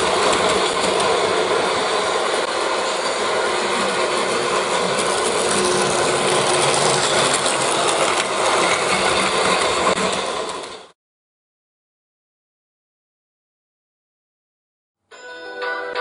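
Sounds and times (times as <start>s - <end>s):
toy train motor rattling: 4.6s - 10.7s.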